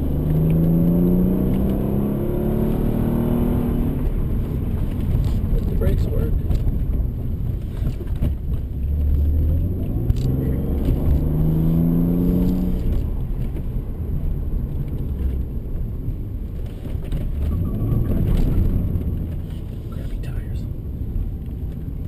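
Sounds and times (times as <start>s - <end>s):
car engine accelerating: 0.0s - 20.6s
low road rumble: 0.0s - 22.0s.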